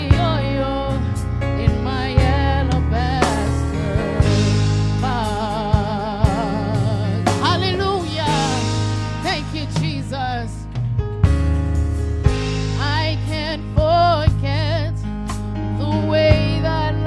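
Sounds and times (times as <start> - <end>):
person singing with vibrato: 0.0 - 10.6
bass: 0.0 - 17.0
drum beat: 3.2 - 10.2, 10.8 - 13.0.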